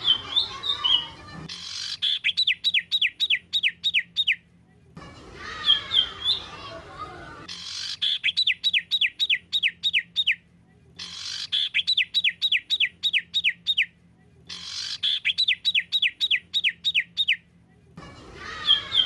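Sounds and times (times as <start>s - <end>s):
songbird whistled notes: 0.0s - 4.3s, 5.4s - 6.7s, 18.4s - 19.0s.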